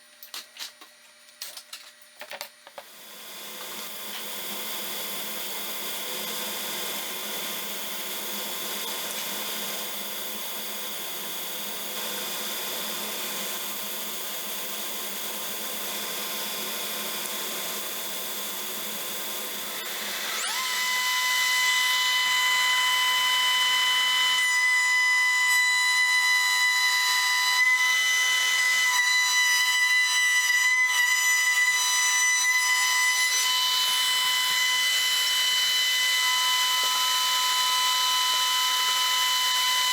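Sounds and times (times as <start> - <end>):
electric power tool motor: 2.8 - 39.9.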